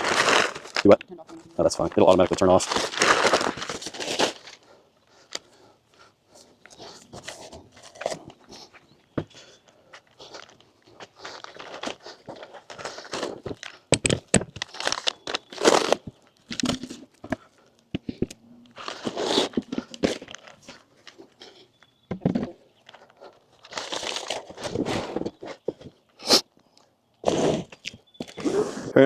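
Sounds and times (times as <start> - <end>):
packaging crinkling and tearing: 0.0 - 5.5, 10.1 - 17.8, 18.7 - 21.8, 22.8 - 26.0.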